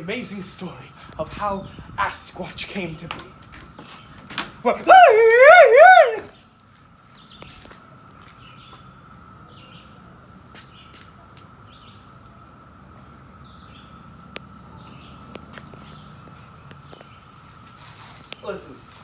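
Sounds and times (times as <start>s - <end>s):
birds chirping: 3.8s - 6.3s.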